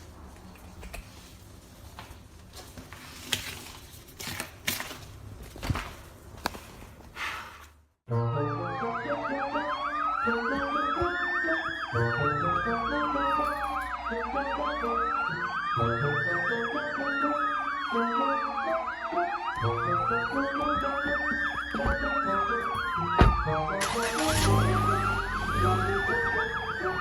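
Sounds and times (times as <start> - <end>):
police siren wailing and yelping: 8.2 - 27.0
background music with bass: 23.3 - 27.0.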